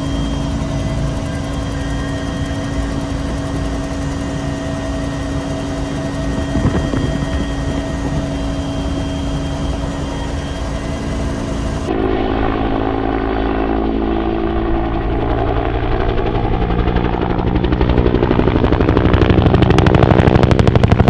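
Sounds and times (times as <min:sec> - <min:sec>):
helicopter turbine and rotor drone: 0:00.0 - 0:21.0.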